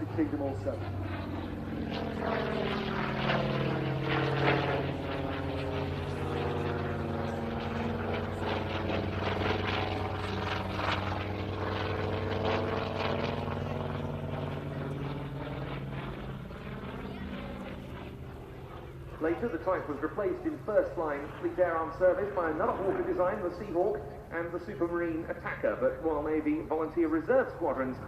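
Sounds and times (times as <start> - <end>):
propeller aircraft engine droning: 0.0 - 28.0.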